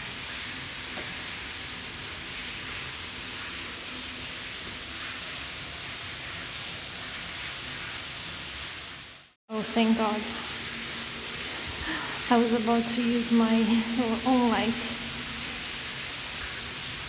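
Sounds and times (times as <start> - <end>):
steady hiss: 9.2 - 17.0.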